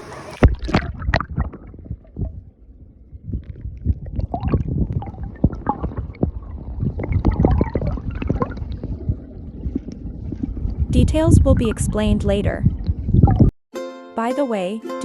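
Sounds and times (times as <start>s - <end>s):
river water gurgling and splashing: 0.0s - 1.8s, 4.1s - 11.4s
low rumble: 0.4s - 13.5s.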